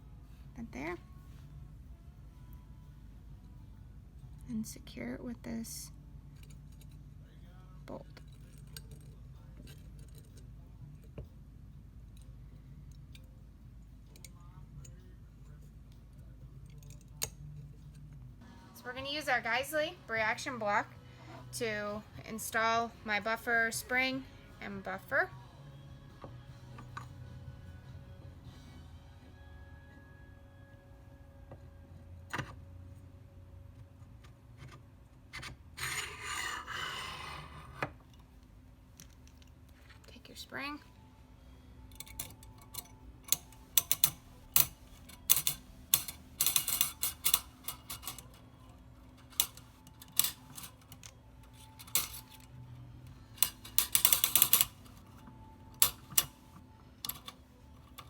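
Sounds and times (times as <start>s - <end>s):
low steady hum: 0.0s - 58.0s
metallic clicks of gun parts: 16.6s - 18.2s, 41.9s - 48.4s, 53.4s - 54.8s
parts rubbing and scraping: 34.5s - 38.2s, 41.9s - 58.0s.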